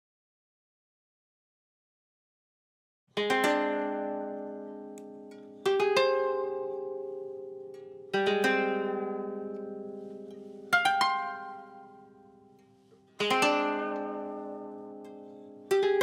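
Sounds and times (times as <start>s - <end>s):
plucked string chords: 3.2s - 16.0s.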